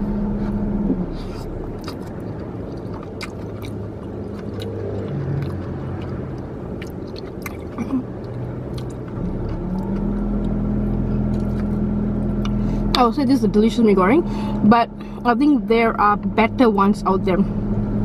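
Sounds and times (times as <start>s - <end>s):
car engine hum: 0.0s - 18.0s
chewing: 1.2s - 10.6s.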